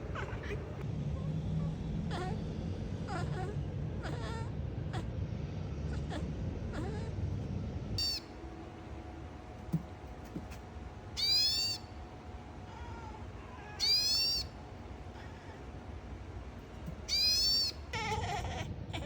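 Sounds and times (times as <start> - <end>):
cat meowing: 12.7 - 14.6, 17.1 - 19.0.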